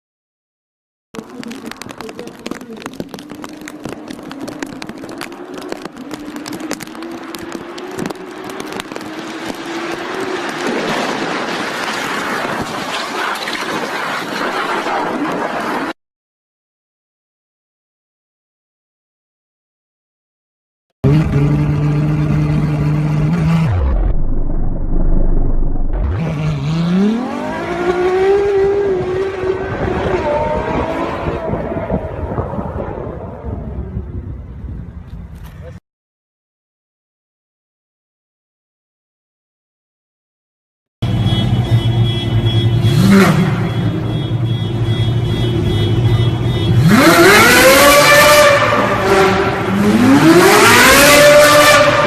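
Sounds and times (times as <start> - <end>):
engine running and revving: 2.4 - 15.9, 21.0 - 34.2, 41.0 - 44.2, 45.1 - 52.0.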